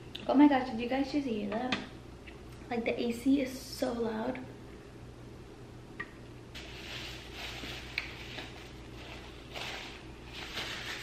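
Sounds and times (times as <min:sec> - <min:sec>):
air conditioner hum: 0:00.0 - 0:11.0
paper wrapper rustling: 0:06.6 - 0:11.0.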